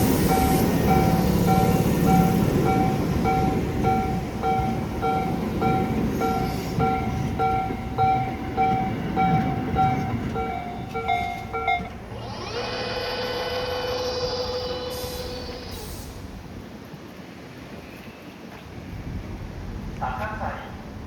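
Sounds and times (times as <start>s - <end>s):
level crossing warning bell: 0.0s - 14.8s
train whine: 0.0s - 17.8s
electric train rumbling: 0.0s - 21.0s.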